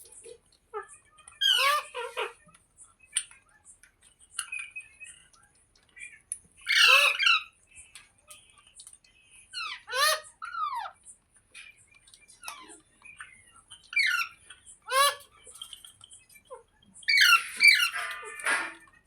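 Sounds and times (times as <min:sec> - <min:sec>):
parrot squawking: 0:00.7 - 0:02.4, 0:06.6 - 0:07.6, 0:09.6 - 0:11.0, 0:13.9 - 0:15.3, 0:17.1 - 0:18.8.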